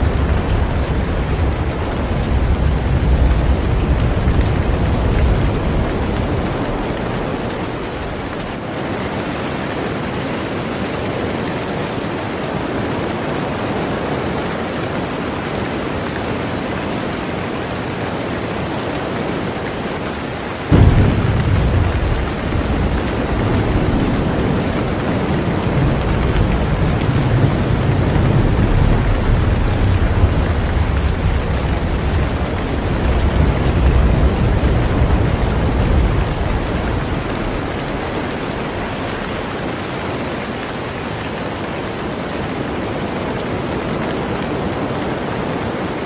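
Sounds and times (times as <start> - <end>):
thunderclap: 0.0 - 8.7, 20.7 - 40.5
thunder rumbling: 0.0 - 8.8, 20.6 - 40.7
heavy rain on a boat: 0.0 - 46.0.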